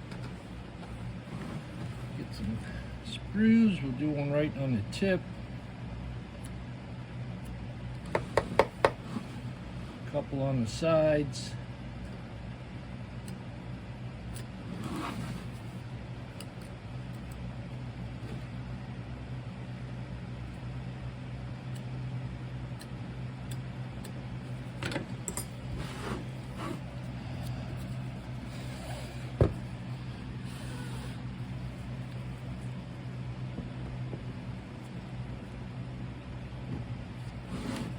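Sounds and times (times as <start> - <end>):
low electrical hum: 0.0 - 37.9
tool scraping casting sand: 25.6 - 29.4, 30.4 - 31.2.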